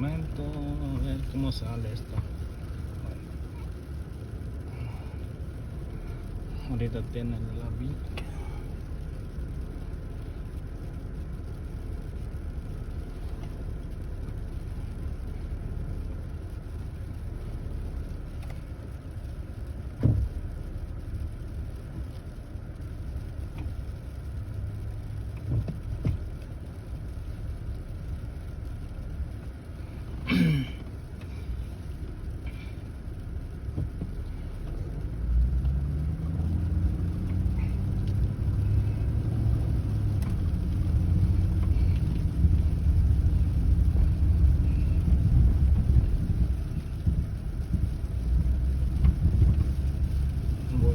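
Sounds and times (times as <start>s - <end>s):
car engine and road rumble: 0.0s - 50.9s.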